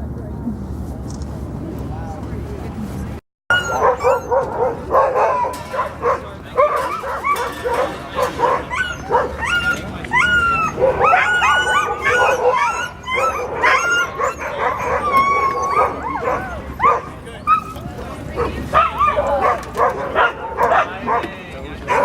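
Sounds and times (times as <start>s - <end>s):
sled dogs barking and yipping: 3.5s - 22.0s.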